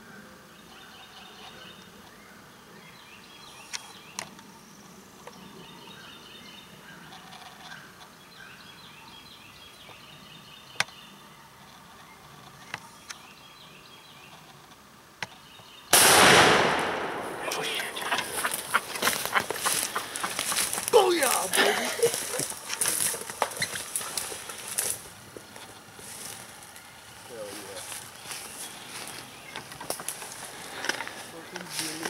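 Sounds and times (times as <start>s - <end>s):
faint bird chatter: 0.0s - 15.9s, 16.9s - 32.0s
turkeys gobbling: 17.4s - 24.9s.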